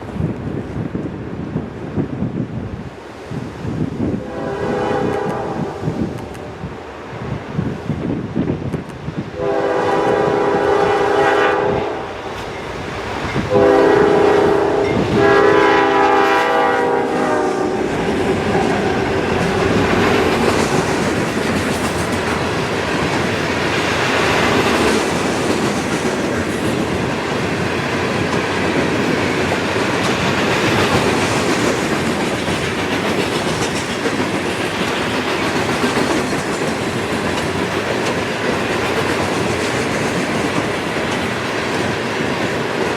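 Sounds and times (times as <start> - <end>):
train wheels on rails: 0.0 - 42.9
clickety-clack of train cars: 3.4 - 6.7, 7.3 - 42.9
locomotive air horn blasts: 4.2 - 6.1, 9.4 - 12.2, 13.4 - 19.1.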